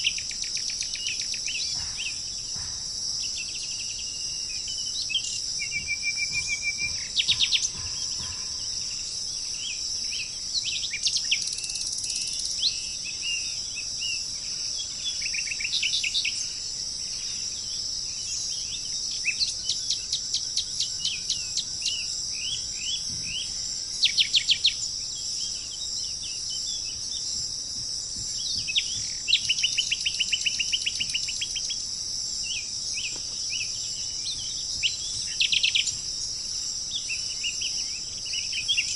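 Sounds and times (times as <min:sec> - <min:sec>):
small birds chirping: 0:00.0 - 0:38.9
steady high-pitched hiss: 0:00.0 - 0:38.9.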